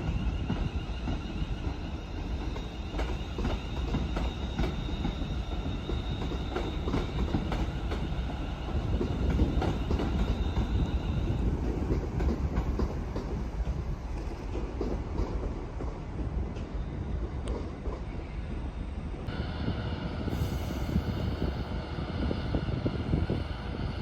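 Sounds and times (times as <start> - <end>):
train rumble: 0.0 - 24.0.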